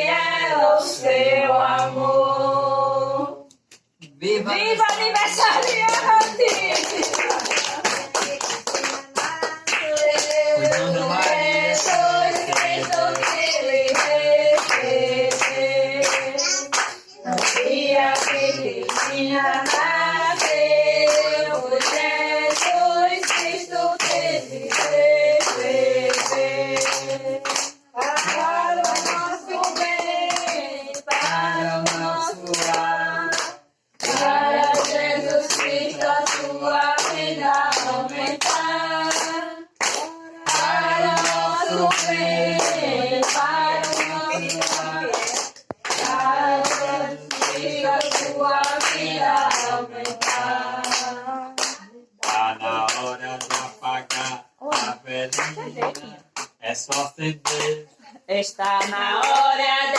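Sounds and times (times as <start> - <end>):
group of people singing gospel: 0.0 - 3.5, 4.1 - 59.9
hands clapping: 4.8 - 57.8, 58.6 - 59.6.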